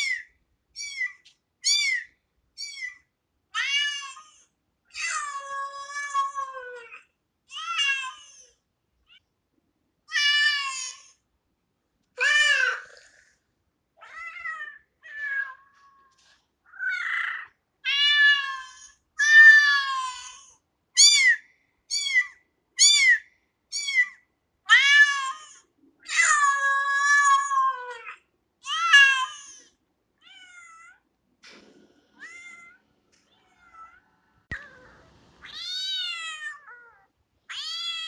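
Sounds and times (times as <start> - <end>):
kitten meowing: 32.2 - 32.8, 33.4 - 38.0.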